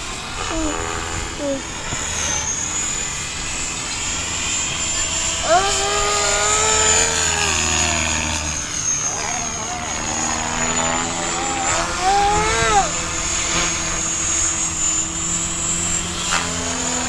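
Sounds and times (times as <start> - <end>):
rc helicopter whine: 0.0 - 17.0
wind rumbling on microphone: 0.0 - 17.0.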